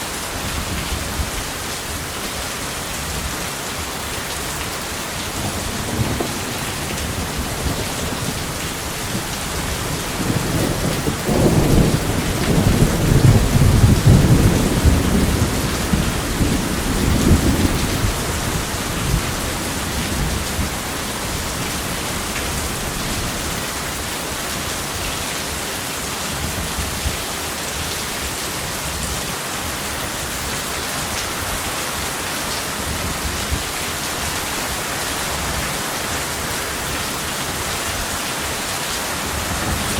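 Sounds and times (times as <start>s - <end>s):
steady rain falling: 0.0s - 39.9s
thunder rolling: 5.3s - 21.7s.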